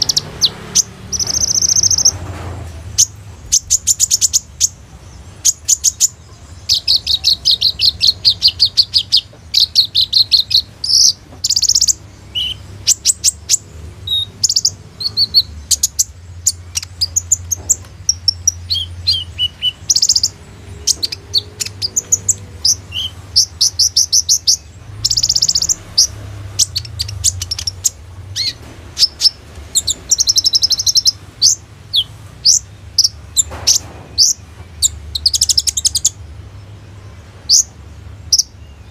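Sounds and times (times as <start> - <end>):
sunbird singing trills and chirps: 0.0 - 2.2, 3.0 - 38.9.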